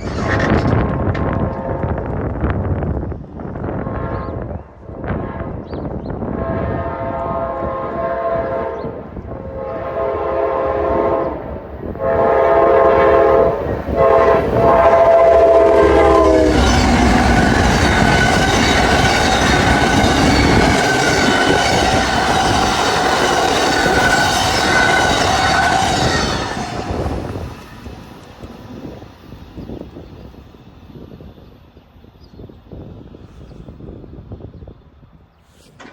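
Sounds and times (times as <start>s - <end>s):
train wheel and rail noise: 0.0s - 35.9s
locomotive air horn: 1.1s - 2.1s, 6.3s - 27.1s.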